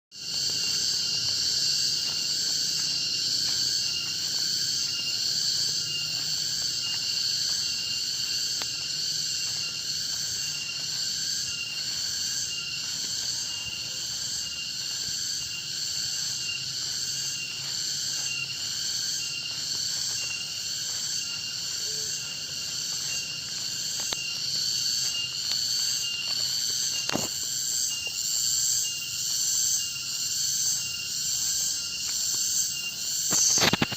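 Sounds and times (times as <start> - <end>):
insects buzzing and shrilling: 0.1 - 33.9.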